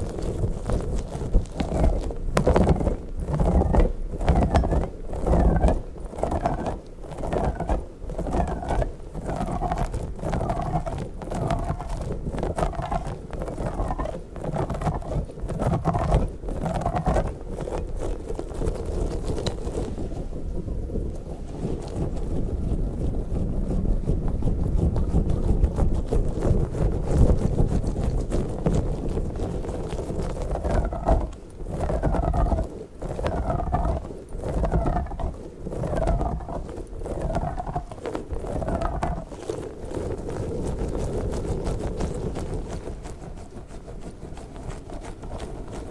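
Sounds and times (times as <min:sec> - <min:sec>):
squishy toy crackling and rubbing: 0:00.0 - 0:45.9
low rubbing rumble from handling: 0:19.3 - 0:34.1.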